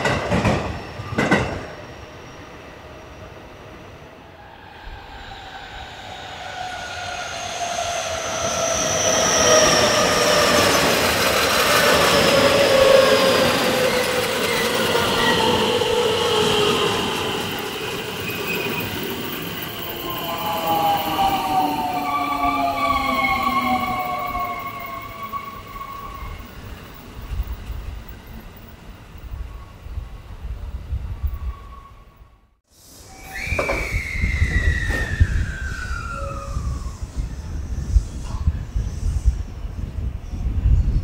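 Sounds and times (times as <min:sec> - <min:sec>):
train running noise: 0:00.0 - 0:31.8.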